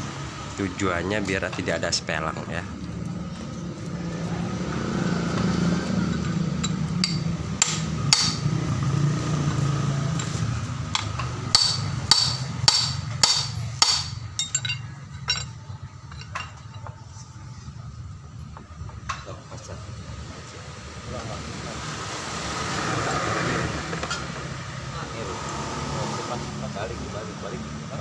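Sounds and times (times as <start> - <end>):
hammer striking metal: 6.0 - 8.6, 10.9 - 15.5.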